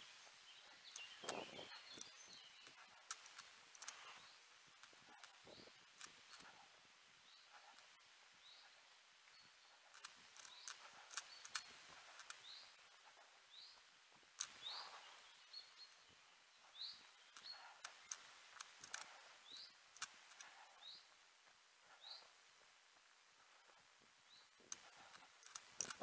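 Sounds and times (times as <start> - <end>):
light clicks: 24.4 - 26.0.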